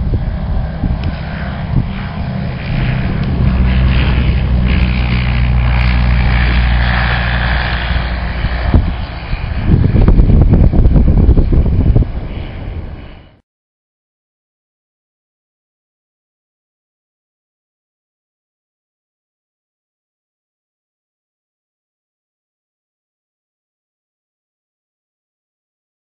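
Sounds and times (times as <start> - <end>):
propeller aircraft engine running: 0.0 - 13.4.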